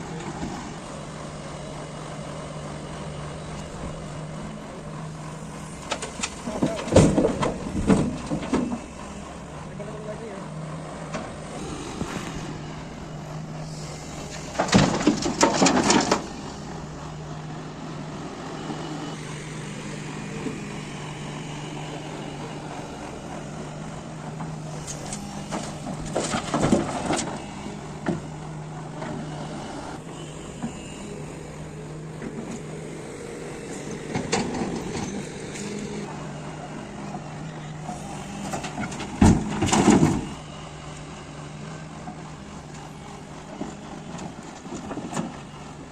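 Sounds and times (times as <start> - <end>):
excavator diesel engine: 0.0 - 45.9.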